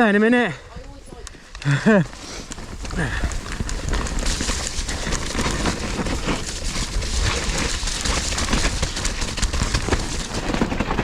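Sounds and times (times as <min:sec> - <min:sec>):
wind rumbling on microphone: 0:00.7 - 0:11.0
mountain bike rattling on trail: 0:00.9 - 0:11.0.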